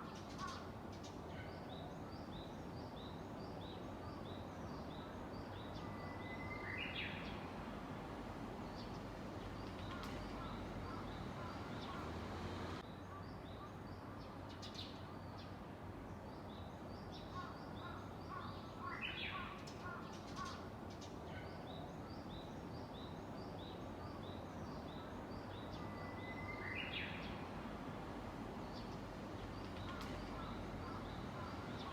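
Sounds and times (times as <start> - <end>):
bush warbler singing: 0.0 - 12.8, 16.2 - 31.9
background noise: 0.0 - 31.9
small birds chirping: 8.6 - 15.6, 28.6 - 31.9.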